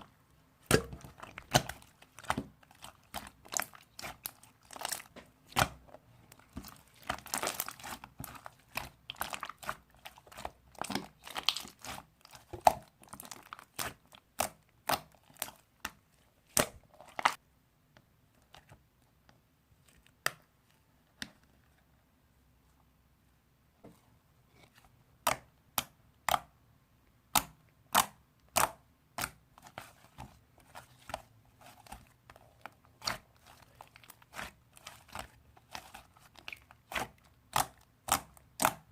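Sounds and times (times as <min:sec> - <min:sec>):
slime squished by hand: 0:00.6 - 0:17.4, 0:27.3 - 0:38.9.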